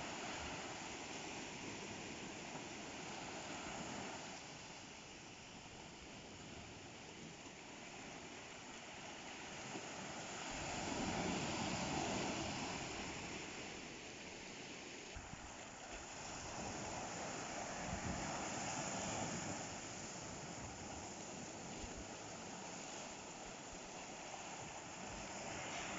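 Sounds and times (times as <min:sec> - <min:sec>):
ocean waves on shore: 0:00.0 - 0:25.9.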